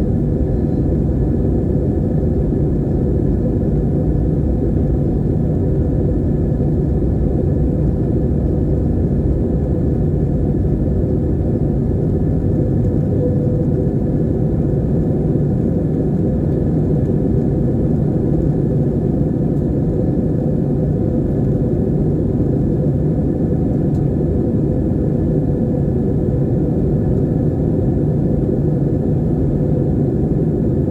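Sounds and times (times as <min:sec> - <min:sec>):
faint steady hum: 0:00.0 - 0:16.8
airplane cabin drone: 0:00.0 - 0:30.9.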